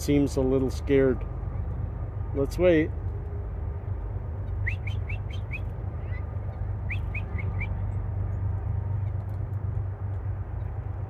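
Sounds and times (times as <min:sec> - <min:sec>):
small songbird calling: 0:04.6 - 0:06.2, 0:06.9 - 0:07.8.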